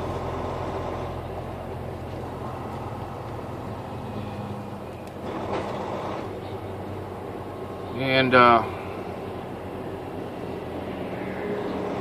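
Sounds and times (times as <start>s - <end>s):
road noise: 0.0s - 12.0s
truck engine drone: 0.0s - 12.0s.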